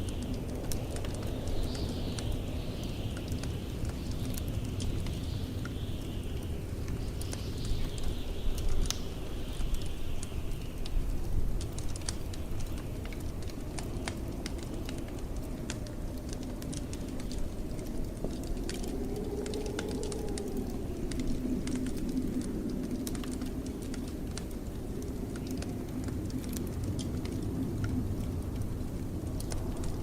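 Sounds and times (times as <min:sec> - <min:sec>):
blizzard wind rumble: 0:00.0 - 0:30.0
wind whistling: 0:00.0 - 0:30.0
fireplace crackling: 0:10.6 - 0:30.0.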